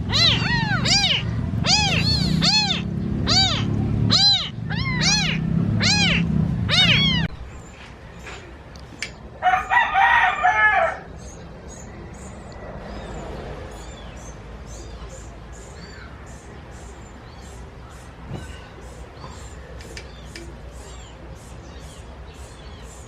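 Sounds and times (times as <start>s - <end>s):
cat meowing: 0.0s - 7.4s
rooster crowing: 9.4s - 11.1s.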